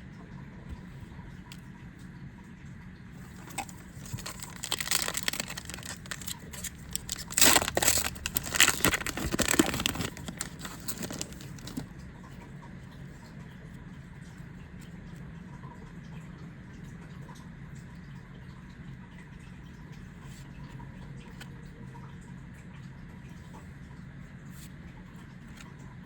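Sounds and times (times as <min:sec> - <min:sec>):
small clicks and rustles: 0:03.2 - 0:11.9
foil wrapper tearing and crinkling: 0:03.3 - 0:11.8.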